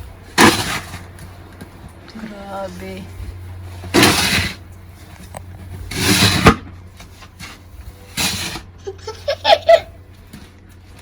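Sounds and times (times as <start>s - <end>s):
snow shovel scraping snow: 0.4s - 1.1s, 3.9s - 4.6s, 5.9s - 6.6s, 8.1s - 8.7s.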